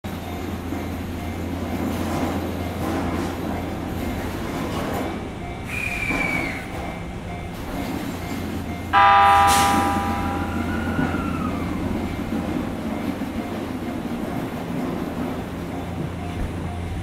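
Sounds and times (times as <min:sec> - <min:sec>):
train equipment humming: 0:00.1 - 0:17.0
train horn blast: 0:09.0 - 0:11.2.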